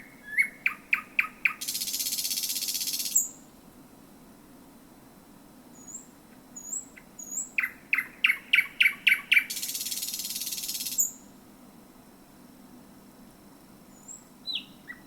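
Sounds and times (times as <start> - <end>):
bird singing sharp notes and trill: 0.0 - 3.4, 5.8 - 11.2, 13.9 - 15.0.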